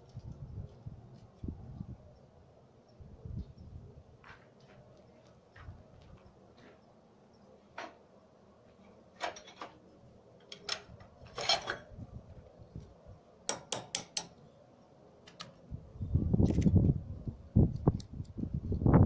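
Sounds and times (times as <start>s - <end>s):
metal tools clinking: 10.4s - 11.9s.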